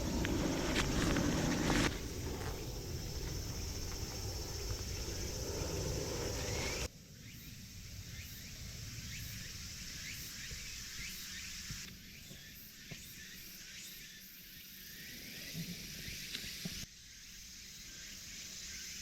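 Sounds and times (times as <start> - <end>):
insect drone: 0.0 - 19.0.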